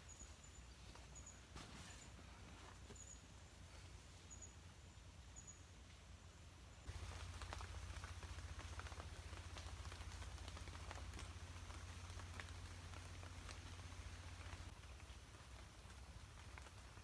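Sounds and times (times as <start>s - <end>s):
rain tapping on plastic tarp: 6.9s - 17.0s.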